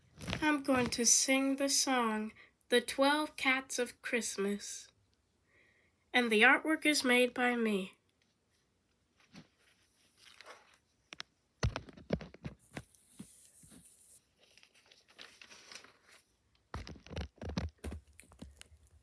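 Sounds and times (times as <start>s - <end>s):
handling noise rustling and clicking: 8.2s - 19.0s.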